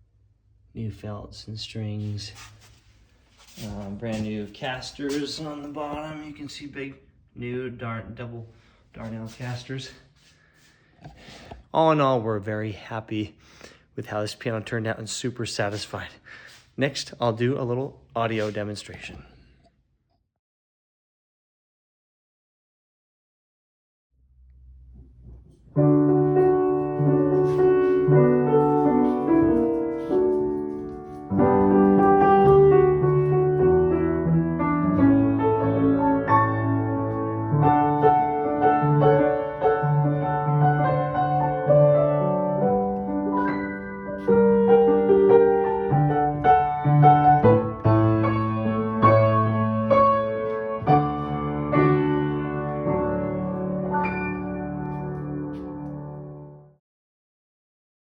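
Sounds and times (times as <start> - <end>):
slow piano piece: 24.8 - 56.8.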